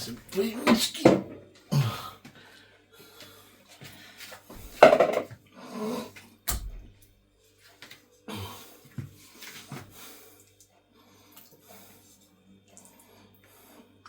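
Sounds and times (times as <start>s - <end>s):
dishes being handled: 4.7s - 5.3s
dishes clattering: 4.7s - 5.3s.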